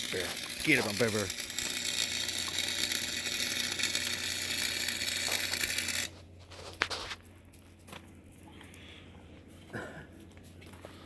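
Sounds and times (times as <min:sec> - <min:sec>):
welding arc crackling: 0:00.0 - 0:06.2.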